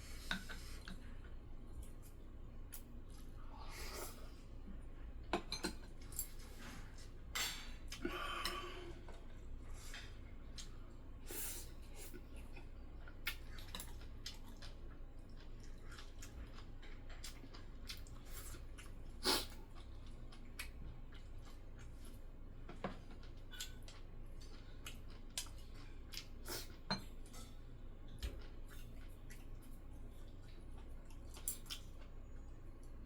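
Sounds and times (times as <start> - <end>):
chewing: 11.9 - 33.0.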